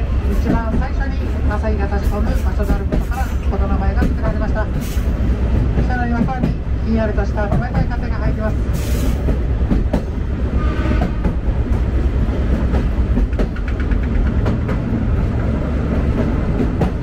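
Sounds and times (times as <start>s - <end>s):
train carriage rumble: 0.0s - 17.0s
wheels clacking over rail joints: 7.4s - 17.0s.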